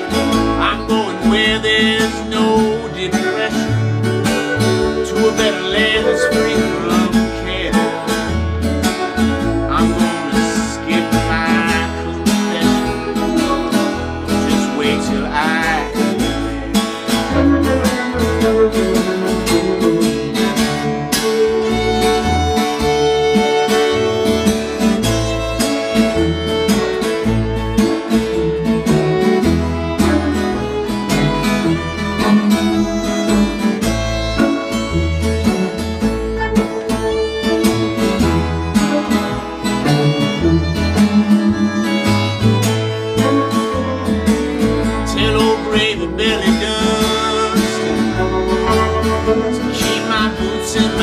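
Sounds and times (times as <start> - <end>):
acoustic guitar: 0.0 - 51.0
electric guitar: 0.0 - 51.0
fiddle: 0.0 - 51.0
bass pulse: 23.9 - 45.4.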